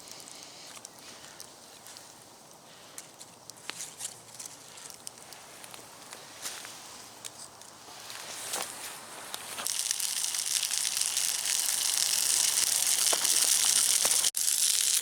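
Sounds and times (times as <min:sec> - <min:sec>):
light clicks and crackles: 0:00.0 - 0:08.7
meat sizzling over a campfire: 0:00.0 - 0:15.0.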